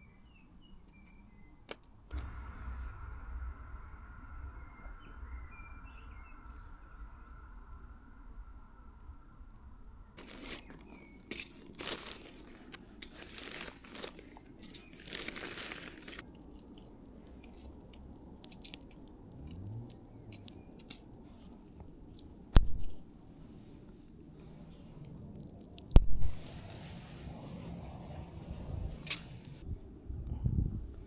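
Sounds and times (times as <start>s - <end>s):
crinkling and tearing: 10.2s - 23.1s, 23.7s - 26.4s.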